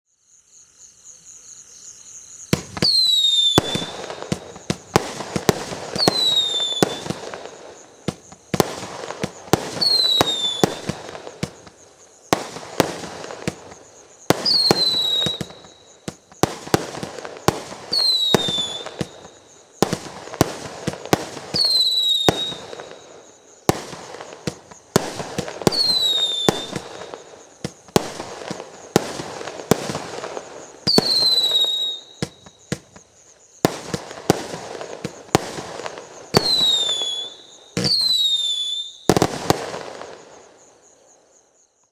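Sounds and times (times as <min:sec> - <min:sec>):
fireworks hiss: 0:02.3 - 0:41.3
fireworks launch and burst cracks: 0:02.5 - 0:40.5
fireworks whistle falling in pitch: 0:02.6 - 0:07.2, 0:14.4 - 0:16.2, 0:17.9 - 0:19.4, 0:25.7 - 0:28.6, 0:30.9 - 0:33.0, 0:36.3 - 0:39.3.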